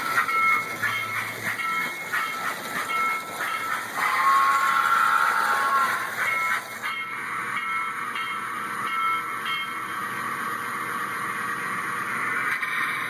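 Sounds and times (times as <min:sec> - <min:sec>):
high-pitched steam hiss: 0:00.0 - 0:10.1
locomotive bell ringing: 0:00.0 - 0:10.1.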